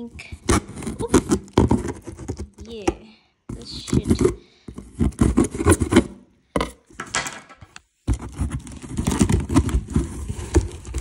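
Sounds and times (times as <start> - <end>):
cardboard box scraping: 0.0 - 2.6, 3.6 - 6.2, 8.0 - 11.0.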